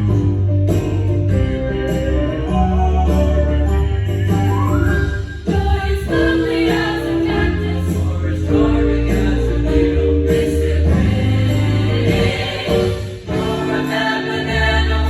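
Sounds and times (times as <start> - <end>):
instrumental accompaniment: 0.0 - 15.0
steady bass line: 0.0 - 15.0
choir singing: 5.4 - 15.0.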